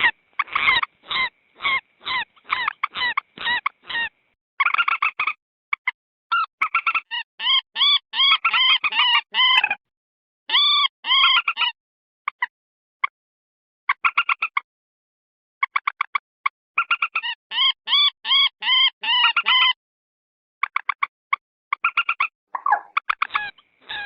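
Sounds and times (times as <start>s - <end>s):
moorhen calling: 0.0s - 4.2s, 22.6s - 24.0s.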